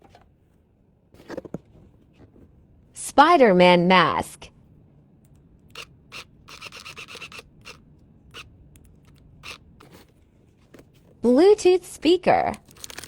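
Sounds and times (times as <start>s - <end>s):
rubbing and scratching of packing material: 12.6s - 13.0s.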